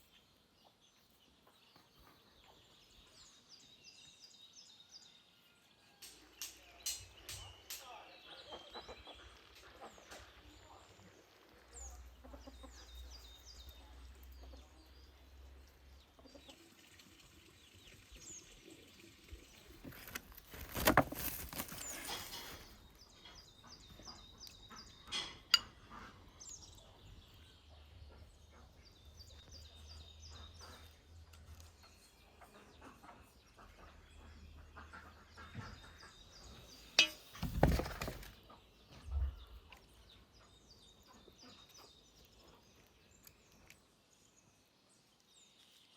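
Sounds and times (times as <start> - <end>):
small birds chirping: 0.0 - 45.9
chickens clucking: 8.2 - 10.8, 12.0 - 17.4, 22.1 - 38.8.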